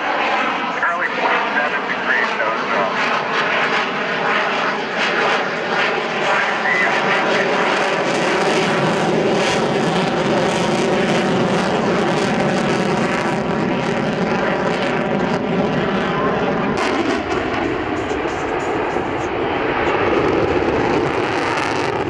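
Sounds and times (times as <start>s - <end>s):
jet engine noise with whine: 0.0s - 22.0s.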